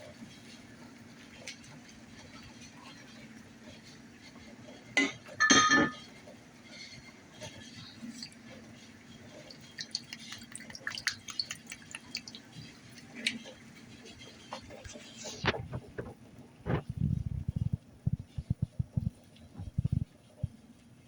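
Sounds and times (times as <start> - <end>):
utensil clinking against pot: 5.0 - 6.1
small taps clicks and drips: 7.5 - 16.8
steady low hum: 7.8 - 20.9.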